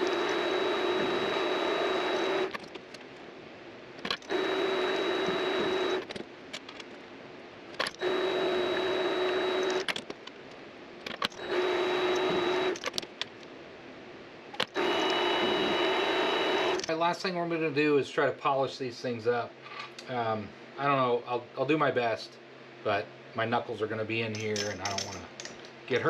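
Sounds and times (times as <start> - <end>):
lathe motor whining: 0.0 - 2.6, 4.2 - 6.1, 7.9 - 9.9, 11.4 - 12.8, 14.7 - 16.9.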